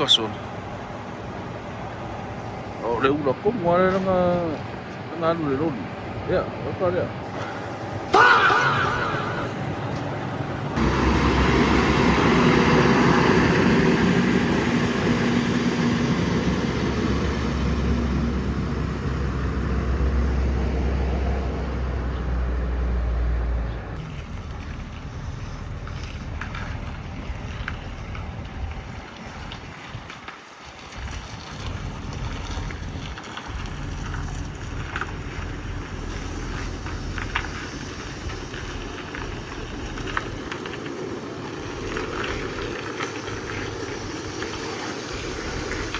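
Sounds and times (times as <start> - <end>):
heavy truck engine running: 0.0 - 45.9
wind on microphone: 26.2 - 45.9
steady low hum: 30.9 - 45.9.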